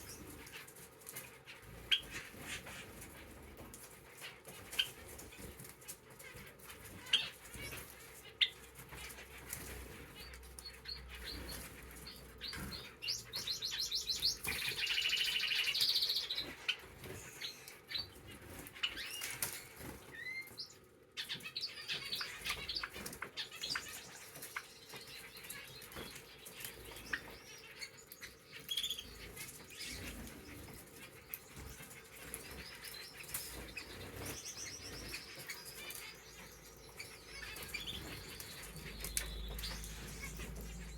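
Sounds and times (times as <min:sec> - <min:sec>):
birds pecking and hopping: 0:00.0 - 0:40.9
high trilled bird song: 0:10.1 - 0:40.9.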